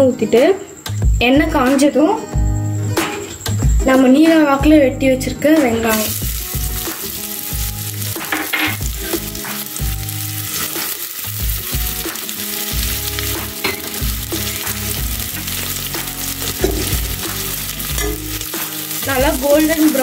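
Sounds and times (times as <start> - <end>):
onions sizzling in hot oil: 5.9 - 20.0.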